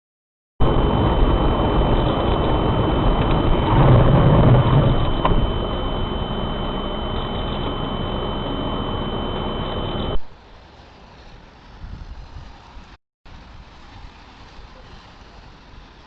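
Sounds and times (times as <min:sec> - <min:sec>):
vehicle engine and road noise: 0:00.6 - 0:10.3
faint high whine: 0:00.6 - 0:10.4
click: 0:05.0 - 0:05.5.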